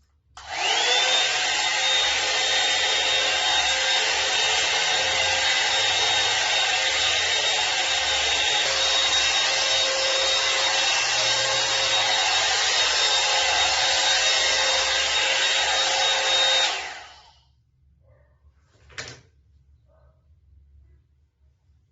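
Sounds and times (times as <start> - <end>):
hair dryer whining: 0.4 - 17.4.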